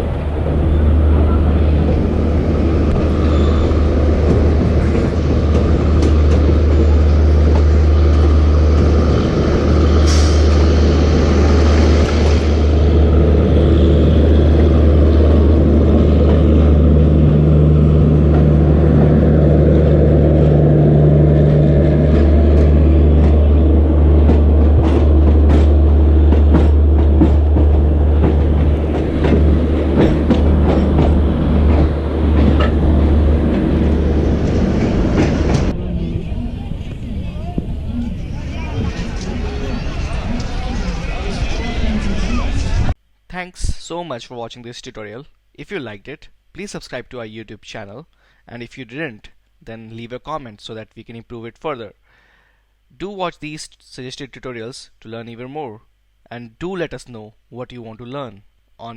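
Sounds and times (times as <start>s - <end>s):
electric train rumbling on rails: 0.0s - 43.0s.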